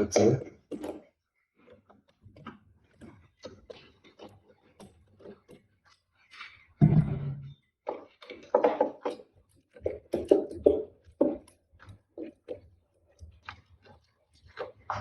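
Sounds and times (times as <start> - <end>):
thump: 6.8 - 7.4.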